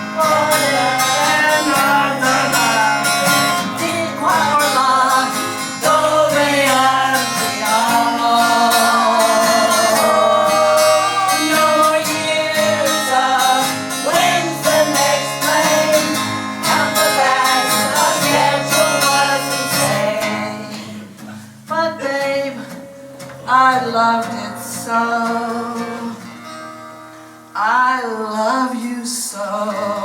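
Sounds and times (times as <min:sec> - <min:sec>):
woman singing: 0:00.0 - 0:21.1, 0:21.7 - 0:22.8, 0:23.4 - 0:26.3
acoustic guitar: 0:00.0 - 0:30.0.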